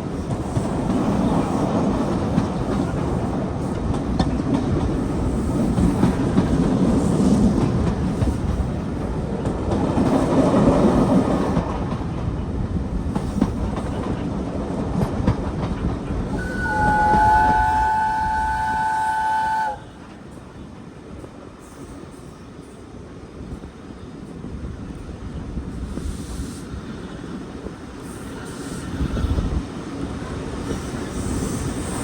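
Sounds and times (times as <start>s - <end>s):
steam train running: 0.0s - 32.0s
train wheels clattering over rail joints: 0.2s - 17.4s
chime whistle: 16.4s - 19.7s.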